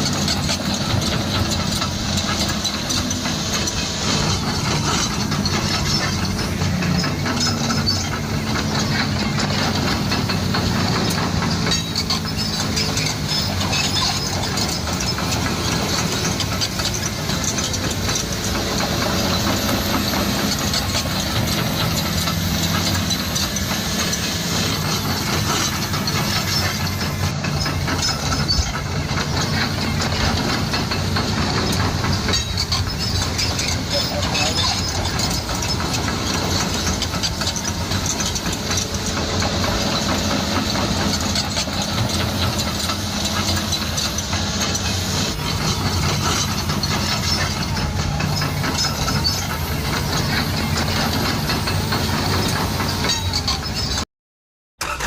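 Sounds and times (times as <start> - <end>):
engine running with low hum: 0.0 - 54.0, 54.8 - 55.0.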